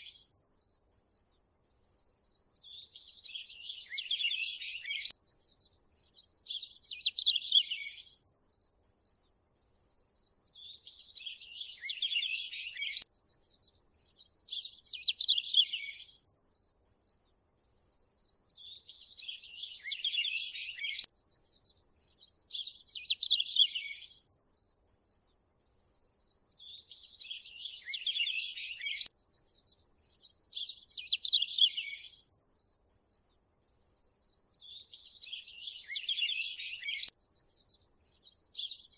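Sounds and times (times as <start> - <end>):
insect chorus hiss: 0.0 - 38.9
bird chirps: 2.6 - 5.2, 6.2 - 8.1, 10.5 - 13.0, 14.4 - 16.2, 18.6 - 21.1, 22.3 - 24.2, 26.6 - 29.1, 30.2 - 32.2, 34.6 - 37.1.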